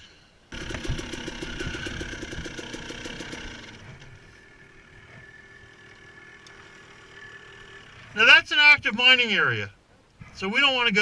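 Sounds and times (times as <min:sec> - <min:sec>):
dirt bike engine running: 0:00.5 - 0:08.0.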